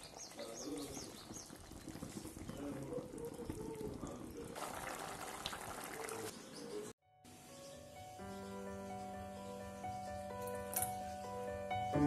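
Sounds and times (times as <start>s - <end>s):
curry bubbling in a pan: 0.0s - 6.3s.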